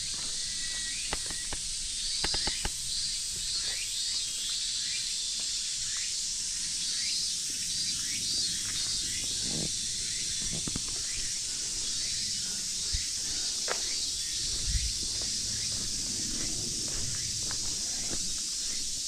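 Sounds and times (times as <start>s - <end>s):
cicada chorus buzzing: 0.0s - 19.0s
footsteps: 12.9s - 19.0s.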